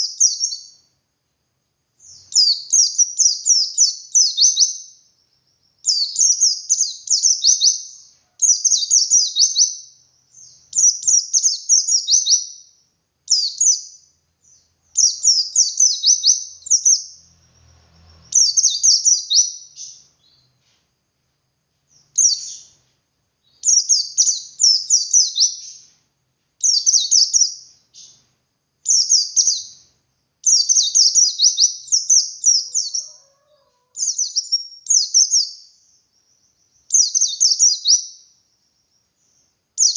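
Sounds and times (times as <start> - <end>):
bird twittering song: 0.0 - 1.0, 2.0 - 20.8, 21.8 - 26.0, 26.6 - 39.9.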